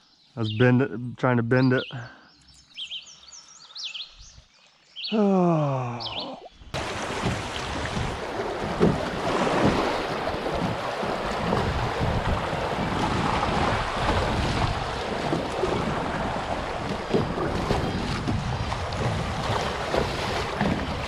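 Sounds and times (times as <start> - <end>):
water moving around kayak: 6.7 - 21.0
wind buffeting microphone: 6.7 - 21.0.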